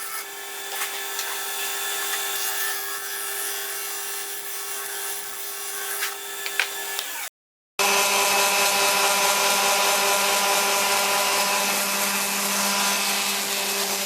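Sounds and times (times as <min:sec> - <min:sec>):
lathe tool scraping wood: 0:00.0 - 0:14.0
lathe motor hum: 0:07.8 - 0:14.0.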